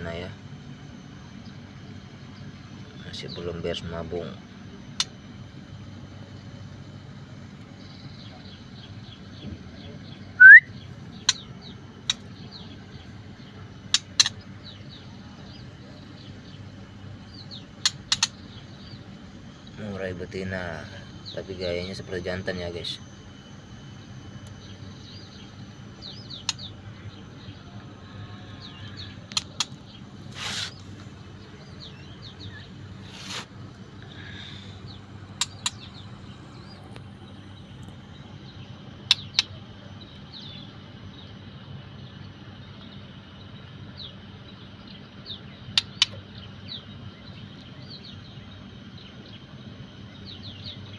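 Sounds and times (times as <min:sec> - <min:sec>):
steady low hum: 0:00.0 - 0:50.9
bird giving high chirps: 0:10.4 - 0:11.5
sharp clicks: 0:17.8 - 0:18.3, 0:29.3 - 0:29.8, 0:35.3 - 0:35.9.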